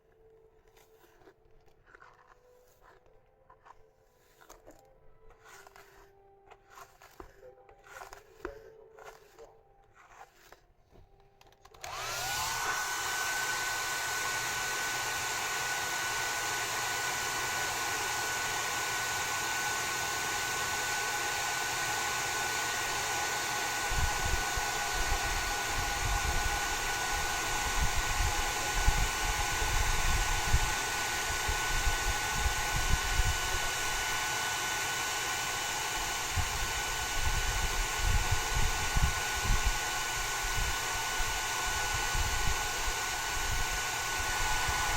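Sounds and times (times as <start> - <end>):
hair dryer whine and airflow: 11.4 - 44.9.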